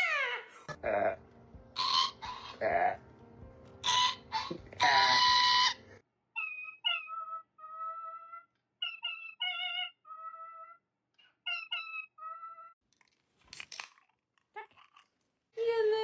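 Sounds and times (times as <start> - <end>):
parrot whistling a tune: 6.4 - 7.9.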